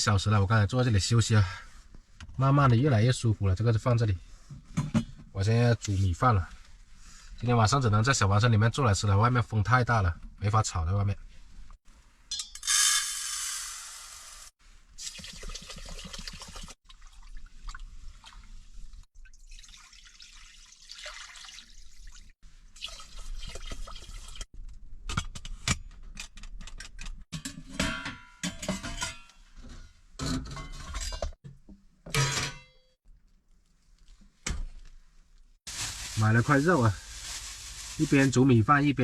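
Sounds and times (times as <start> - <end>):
metal pot and utensils clinking: 12.3 - 12.8, 26.7 - 31.4, 32.0 - 33.0
water sloshing in a pot: 15.0 - 24.5.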